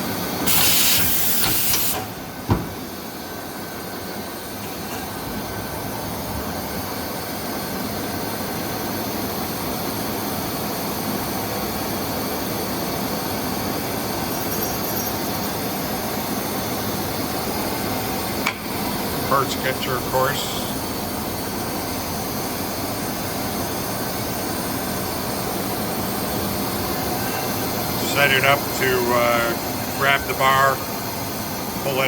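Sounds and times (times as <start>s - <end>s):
machine running steadily: 0.0s - 32.0s
burst of hiss: 0.5s - 2.1s.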